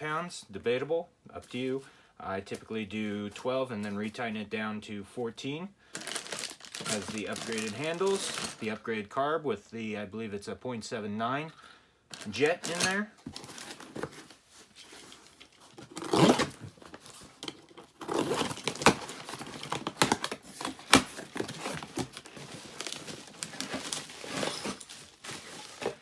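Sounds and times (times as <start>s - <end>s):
packaging crinkling: 6.0s - 8.8s, 12.1s - 26.0s.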